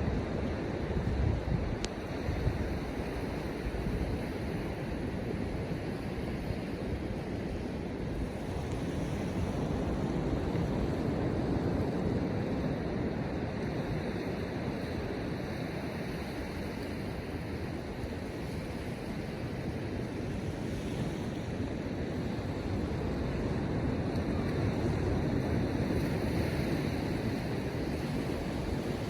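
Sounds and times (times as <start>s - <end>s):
ocean surf washing onto beach: 0.0s - 29.0s
wind on microphone: 0.0s - 29.0s.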